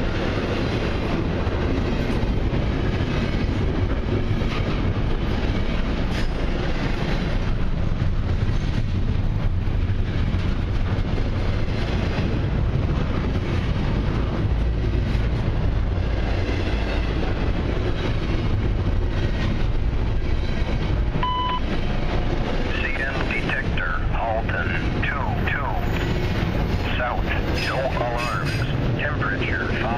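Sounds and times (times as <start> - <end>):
freight train rolling past: 0.0 - 29.9
short electronic beep: 21.2 - 21.6.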